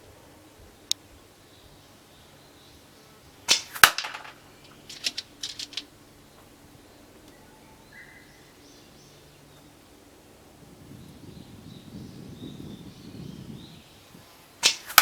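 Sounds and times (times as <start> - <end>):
airsoft rifle firing: 3.5 - 5.9.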